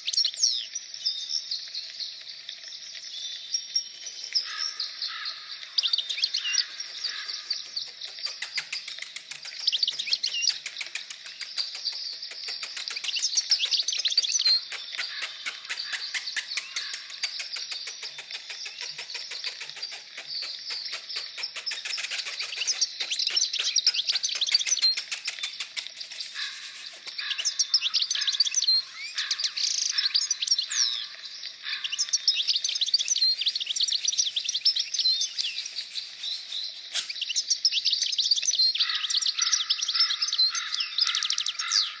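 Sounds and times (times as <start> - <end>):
songbirds chirping and twittering: 0.0 - 42.0.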